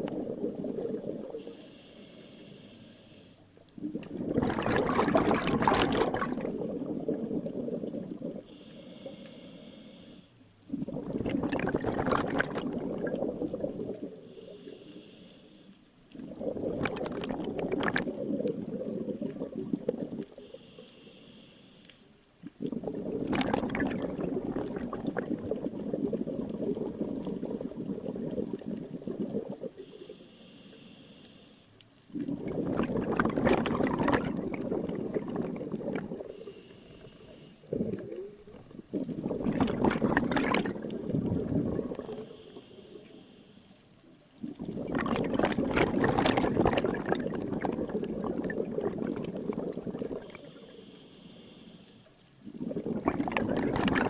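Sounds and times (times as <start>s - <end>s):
regulator exhalation bubbles: 0.0s - 1.5s, 3.8s - 9.0s, 10.7s - 14.5s, 16.2s - 20.6s, 22.4s - 30.0s, 32.1s - 42.4s, 44.4s - 50.6s, 52.4s - 54.0s
regulator inhalation hiss: 1.4s - 3.5s, 8.5s - 10.4s, 14.2s - 15.8s, 20.4s - 22.1s, 29.8s - 31.8s, 36.2s - 37.7s, 42.0s - 43.9s, 50.2s - 52.2s.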